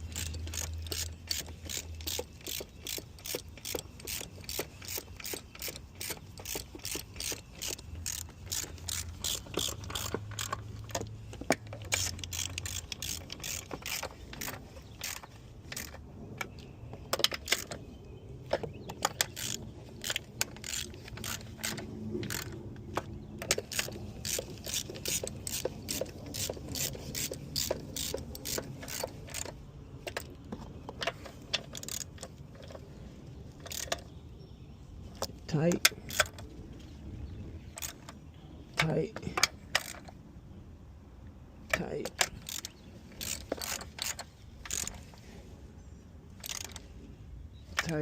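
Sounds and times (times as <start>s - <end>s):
hand ratchet clicking: 0.0s - 16.0s, 17.1s - 17.8s, 18.9s - 30.3s, 31.1s - 32.8s, 33.6s - 34.0s, 35.2s - 36.4s, 41.7s - 45.0s, 46.4s - 46.8s.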